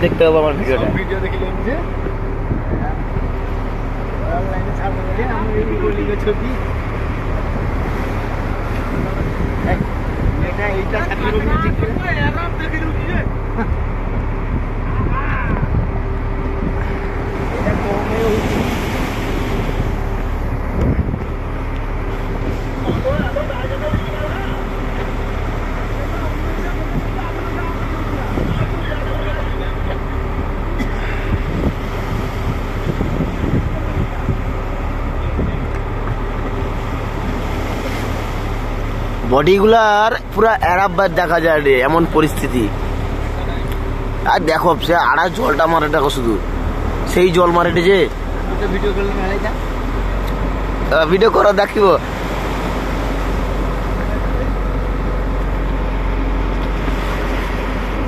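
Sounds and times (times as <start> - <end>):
boat engine running: 0.0 - 58.0
rough sea: 0.0 - 58.0
water washing: 0.0 - 58.0
wind: 0.0 - 58.0
wind noise: 2.0 - 3.9, 6.7 - 25.1, 28.1 - 28.9, 31.2 - 38.5.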